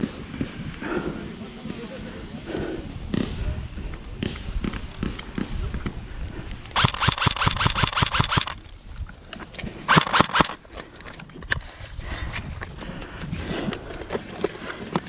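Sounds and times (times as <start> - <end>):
airsoft gun firing: 6.8 - 8.6, 9.9 - 10.6.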